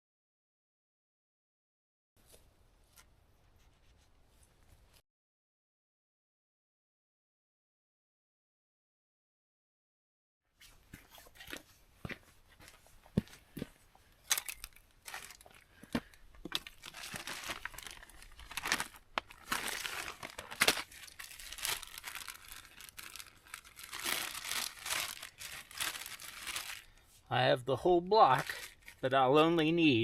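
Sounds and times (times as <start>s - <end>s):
packaging crinkling and tearing: 14.3s - 27.0s, 28.3s - 29.0s.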